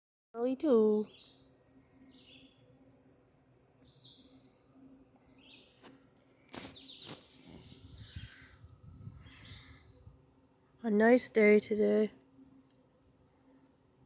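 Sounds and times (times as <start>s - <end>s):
small birds chirping: 0.6s - 2.9s, 3.8s - 12.5s
rushing hissing noise: 6.5s - 8.5s.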